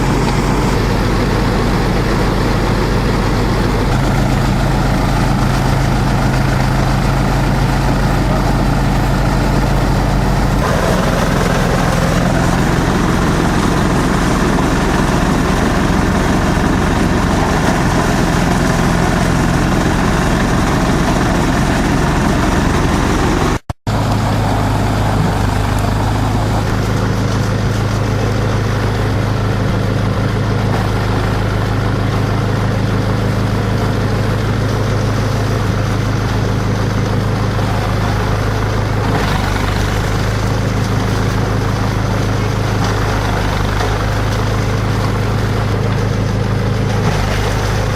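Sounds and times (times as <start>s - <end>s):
shredder machine humming: 0.0s - 47.9s.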